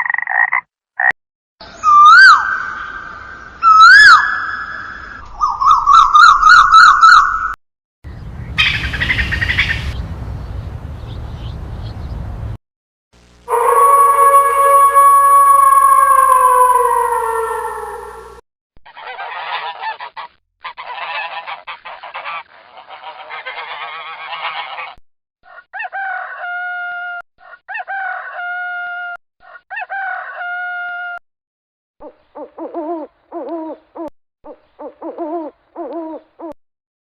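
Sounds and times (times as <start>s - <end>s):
long steady bird calls: 1.6s - 12.4s, 13.5s - 18.4s
bird flock chorus: 8.1s - 10.0s.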